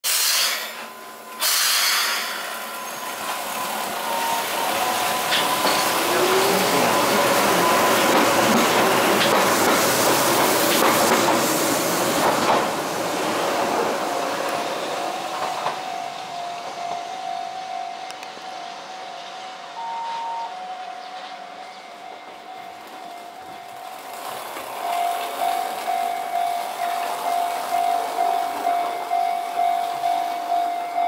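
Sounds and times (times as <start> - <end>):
air hiss: 0.0 - 2.7
train wheels and running gear: 0.1 - 20.2, 21.0 - 31.0.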